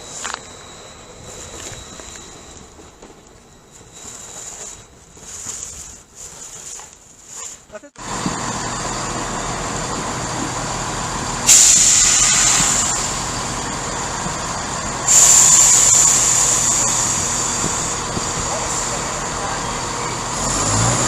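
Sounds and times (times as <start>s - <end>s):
train engine running: 0.0s - 21.0s
air brakes hissing: 11.4s - 20.8s.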